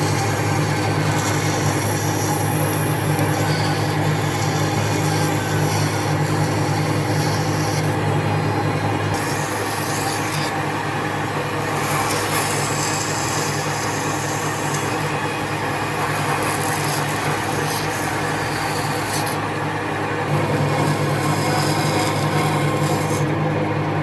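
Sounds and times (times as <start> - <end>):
power tool sanding wood: 0.0 - 23.5.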